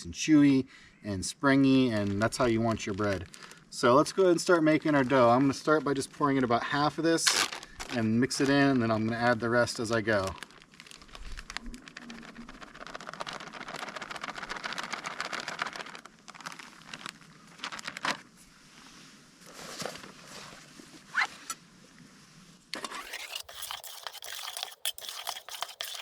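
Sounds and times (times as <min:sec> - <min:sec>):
utensil scraping a pot: 0:22.8 - 0:26.0.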